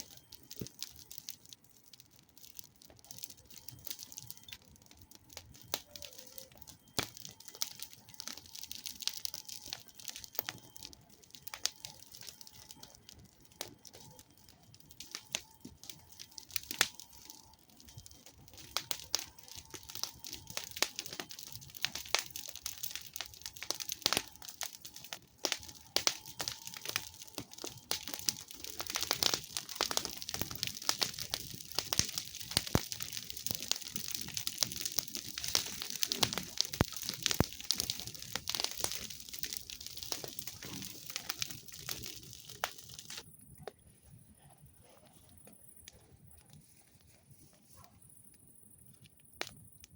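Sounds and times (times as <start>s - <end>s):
campfire crackling and popping: 0.0s - 49.9s
steady hiss of fire: 0.0s - 49.9s.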